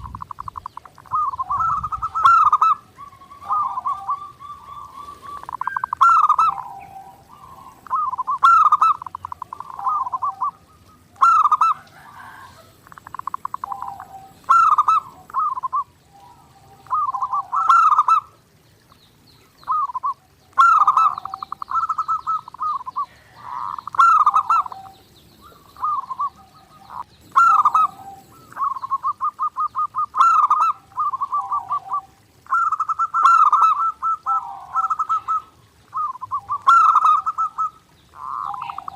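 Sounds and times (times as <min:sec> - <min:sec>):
dove cooing: 0:00.0 - 0:18.4, 0:19.6 - 0:38.9.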